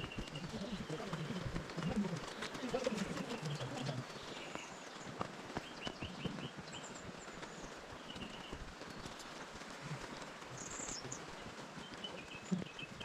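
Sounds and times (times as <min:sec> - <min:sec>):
footsteps on stony trail: 0:00.0 - 0:13.0
songbirds chirping: 0:00.0 - 0:13.0.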